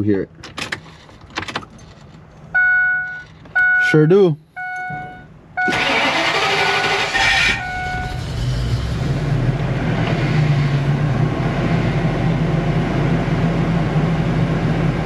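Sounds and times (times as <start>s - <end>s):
man talking: 0.0s - 0.3s, 3.8s - 4.4s
warning chime beeping: 4.6s - 6.0s, 6.6s - 8.3s
engine starter cranking: 5.6s - 9.1s.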